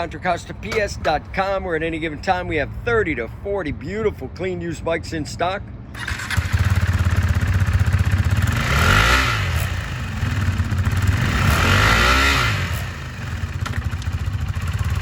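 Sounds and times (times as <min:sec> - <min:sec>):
motorcycle engine idling and revving: 0:05.9 - 0:15.0.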